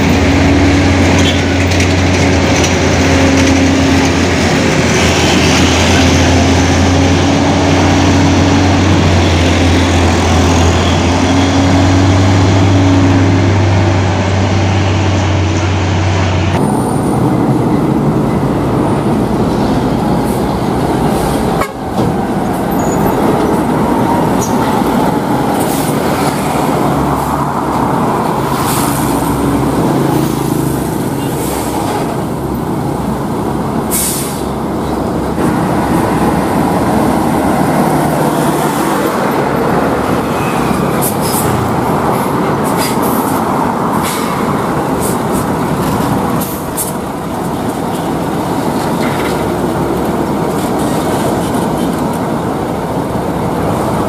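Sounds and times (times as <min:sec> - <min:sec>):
heavy trucks passing: 0:00.0 - 0:54.0.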